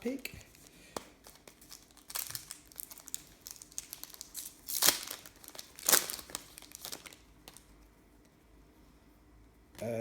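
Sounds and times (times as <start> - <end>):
plastic wrapper crinkling: 0.0 - 7.7.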